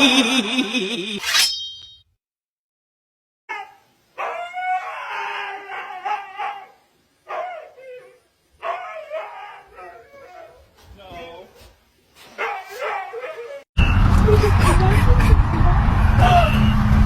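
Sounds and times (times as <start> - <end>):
dog howling: 3.5 - 10.7, 12.4 - 13.7.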